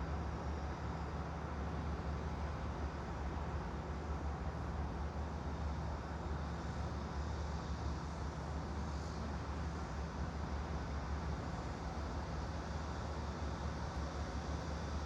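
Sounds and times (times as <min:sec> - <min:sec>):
constant low hum: 0:00.0 - 0:15.0.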